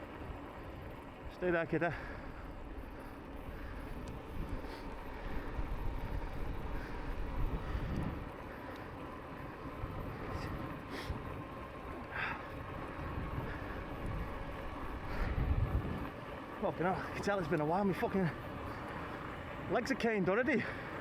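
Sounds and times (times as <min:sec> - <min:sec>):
bicycle tyre noise: 0:00.0 - 0:21.0
faint steady whine: 0:00.0 - 0:21.0
wind rumbling over microphone: 0:02.2 - 0:16.4.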